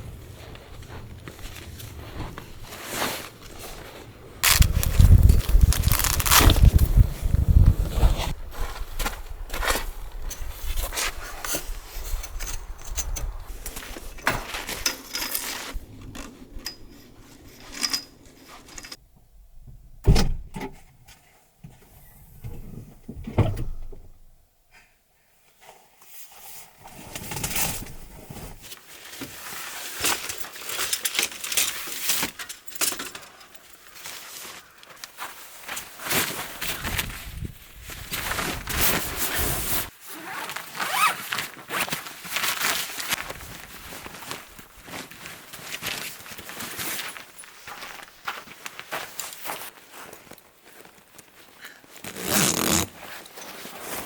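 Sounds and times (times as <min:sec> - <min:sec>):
objects being handled: 0:01.5 - 0:08.4.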